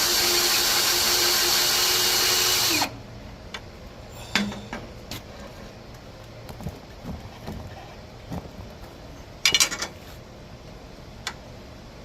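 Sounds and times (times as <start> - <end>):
electric drill boring through metal: 0.0 - 2.9.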